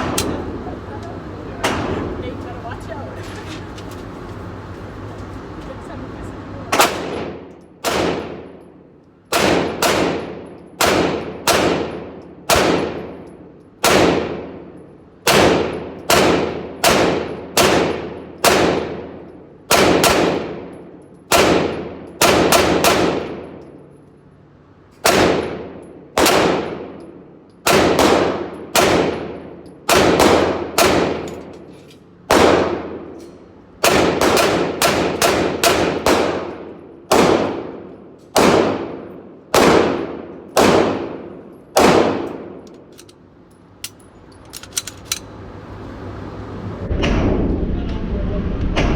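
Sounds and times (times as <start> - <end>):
pistol shots echoing: 6.7 - 8.6, 9.3 - 23.6, 25.0 - 31.6, 32.3 - 33.2, 33.8 - 42.9.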